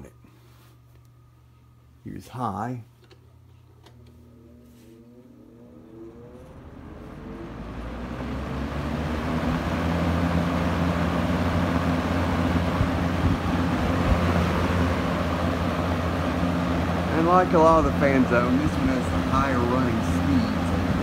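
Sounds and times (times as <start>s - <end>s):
box fan whirring: 0.0s - 21.0s
rushing air from fan blades: 4.7s - 21.0s.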